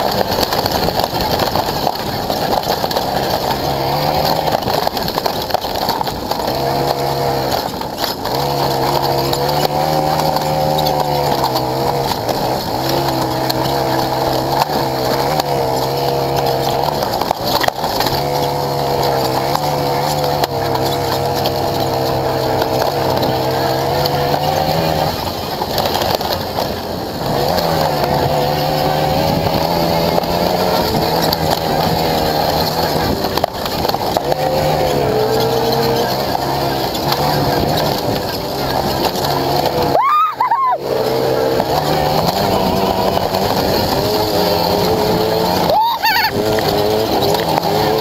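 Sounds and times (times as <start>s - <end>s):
racing motorcycle engine high revs: 0.0s - 48.0s.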